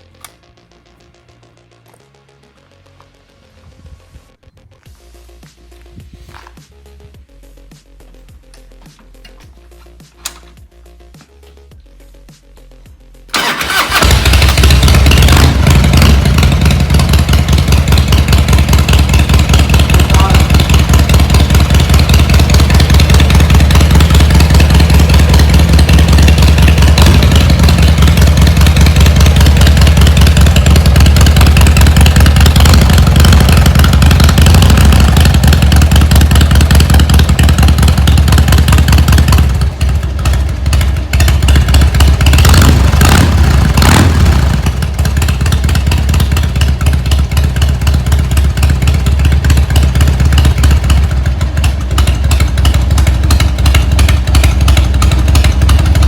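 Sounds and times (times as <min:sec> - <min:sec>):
motorcycle engine idling: 0:13.3 - 0:56.0.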